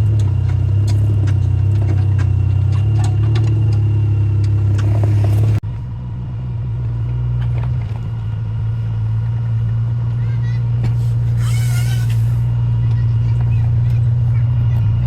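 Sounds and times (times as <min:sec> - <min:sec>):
light clicks and clatter: 0:00.0 - 0:05.6
excavator engine humming: 0:00.0 - 0:15.0.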